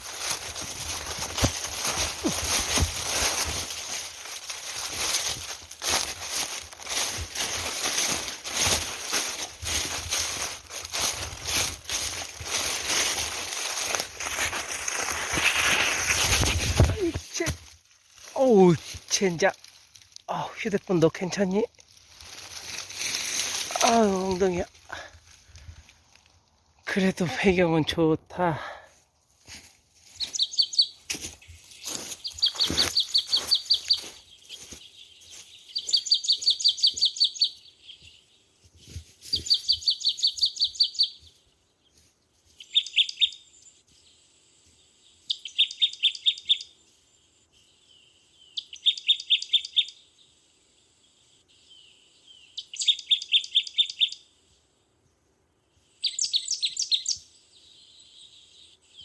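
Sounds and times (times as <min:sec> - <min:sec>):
dry leaves rustling underfoot: 0:00.0 - 0:27.7, 0:28.9 - 0:43.0
small bird trilling: 0:30.2 - 0:31.0, 0:31.7 - 0:34.8, 0:35.6 - 0:37.6, 0:56.0 - 0:57.2.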